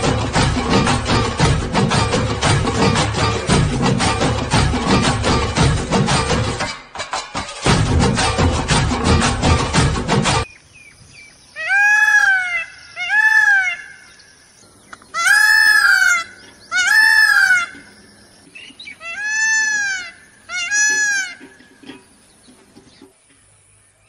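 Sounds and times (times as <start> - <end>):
large bird calling: 10.6 - 23.1.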